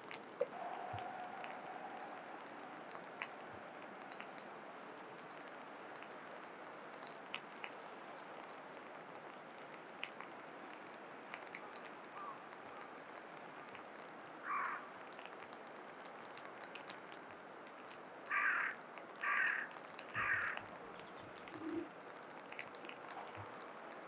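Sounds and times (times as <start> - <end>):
faint outdoor hiss: 0.0 - 24.0
crow cawing: 14.4 - 14.9, 18.3 - 20.7.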